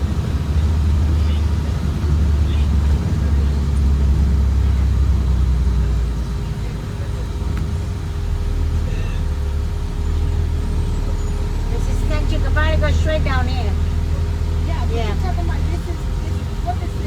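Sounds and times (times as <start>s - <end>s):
bus diesel engine rumble: 0.0s - 17.0s.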